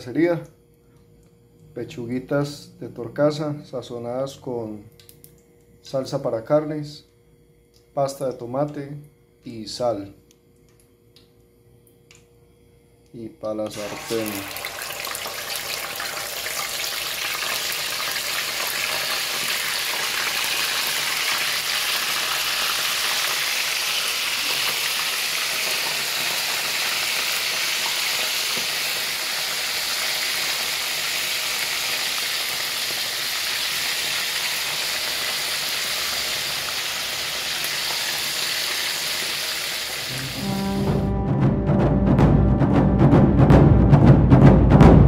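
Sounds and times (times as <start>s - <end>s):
meat sizzling in hot oil: 13.8s - 40.1s.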